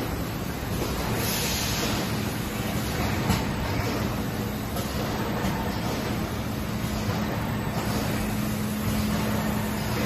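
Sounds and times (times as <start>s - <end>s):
constant low hum: 0.0s - 10.0s
packaging machinery running: 0.0s - 10.0s.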